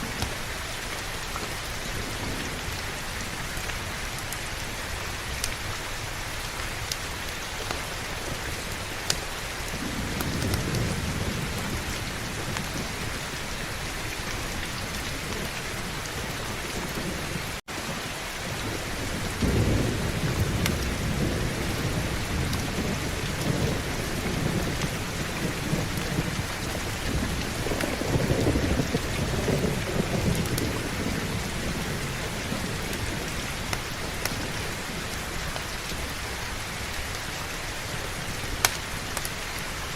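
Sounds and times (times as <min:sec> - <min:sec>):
heavy rain: 0:00.0 - 0:39.9
rolling thunder: 0:08.3 - 0:36.1.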